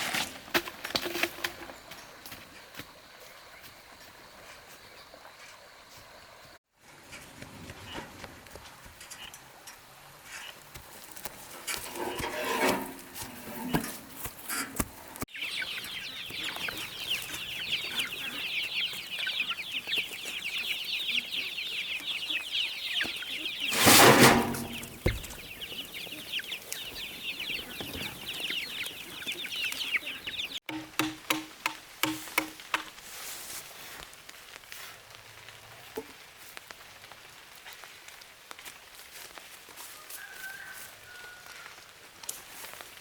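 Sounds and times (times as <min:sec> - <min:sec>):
chicks peeping: 0:13.7 - 0:30.8
taps and clicks: 0:30.7 - 0:32.9.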